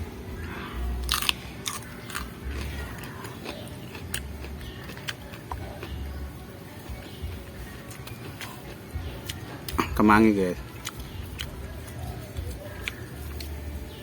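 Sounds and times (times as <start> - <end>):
crunchy biting and chewing: 0.4 - 10.0, 10.6 - 14.0.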